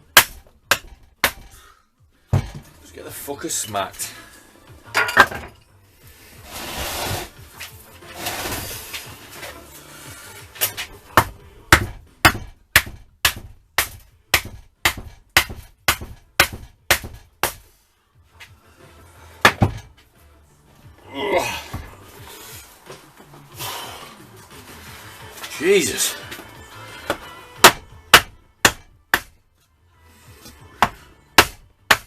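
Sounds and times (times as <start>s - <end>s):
hammer striking metal: 27.1s - 29.3s.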